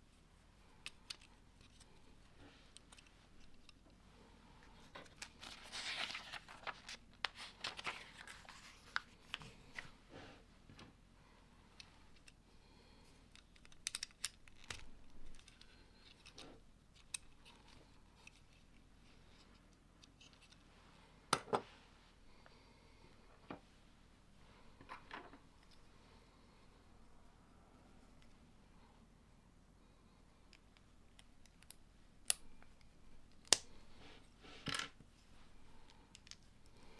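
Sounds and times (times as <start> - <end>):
rustling: 0.1 - 10.5.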